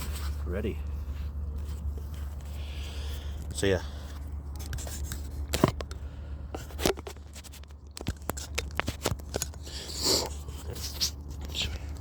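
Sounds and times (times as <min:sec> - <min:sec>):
steady low hum: 0:00.0 - 0:12.0
phone handling clicks and scrapes: 0:04.1 - 0:12.0.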